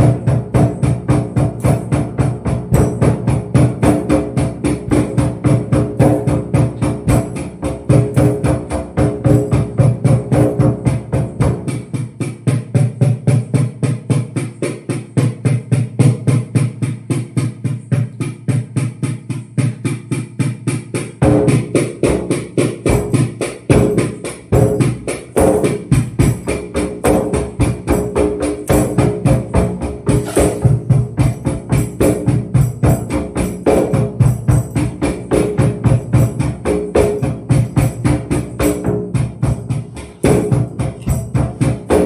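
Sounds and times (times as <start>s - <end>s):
drum with tambourine jingles: 0.0s - 42.0s.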